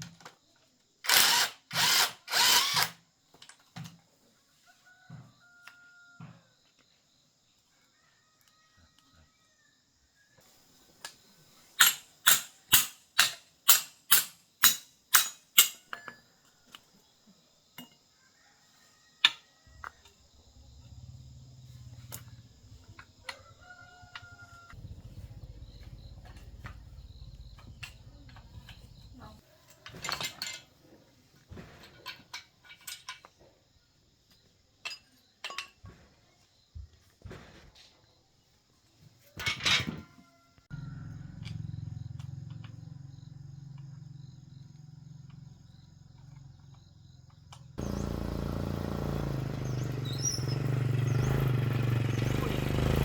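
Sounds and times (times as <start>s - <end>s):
metal tools clinking: 11.8s - 16.3s, 29.8s - 30.8s, 31.8s - 33.3s, 34.8s - 35.8s
low hum: 24.8s - 29.4s.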